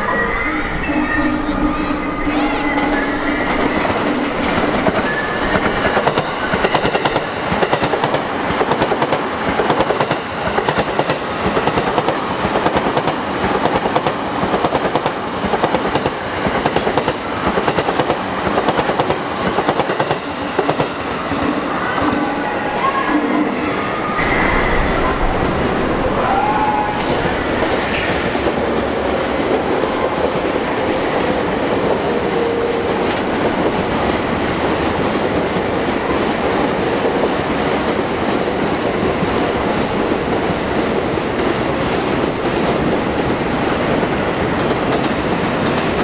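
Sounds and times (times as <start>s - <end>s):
train wheels clattering: 2.8s - 22.2s.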